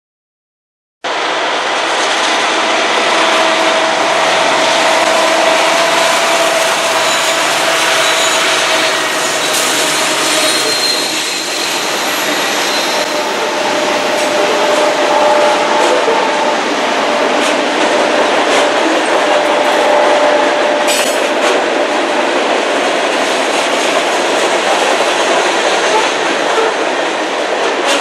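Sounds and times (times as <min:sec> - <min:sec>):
freight train wheels rushing on rail: 0:01.1 - 0:28.0.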